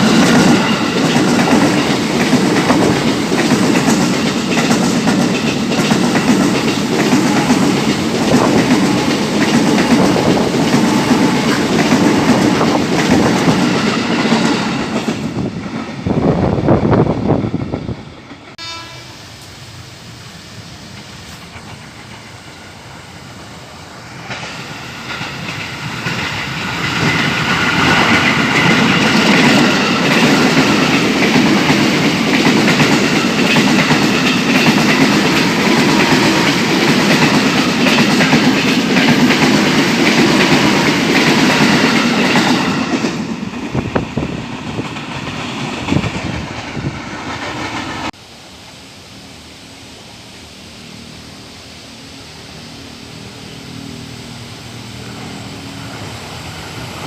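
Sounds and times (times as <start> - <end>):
train wheels clattering: 0.0 - 16.0, 24.2 - 48.2.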